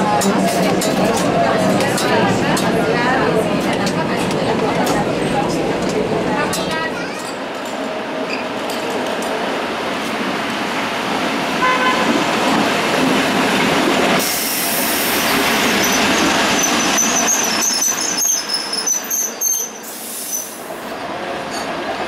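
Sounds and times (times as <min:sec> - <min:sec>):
tram running on rails: 0:00.0 - 0:22.0
tram horn toot: 0:11.6 - 0:12.3
wheels squealing: 0:15.2 - 0:20.6.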